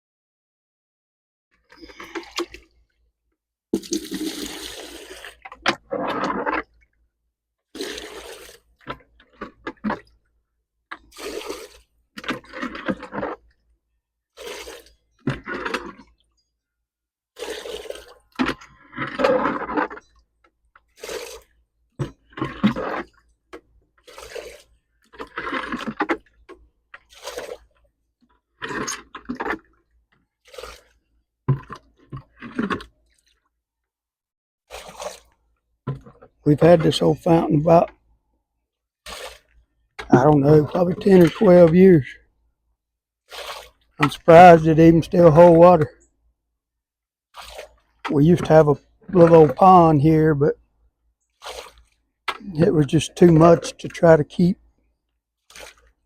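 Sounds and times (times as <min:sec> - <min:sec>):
water sloshing and splashing: 0:01.6 - 0:03.1, 0:03.7 - 0:16.4, 0:17.3 - 0:33.6, 0:34.7 - 0:38.2, 0:39.0 - 0:42.0, 0:43.2 - 0:45.9, 0:47.3 - 0:50.3, 0:51.1 - 0:54.5, 0:55.3 - 0:56.0.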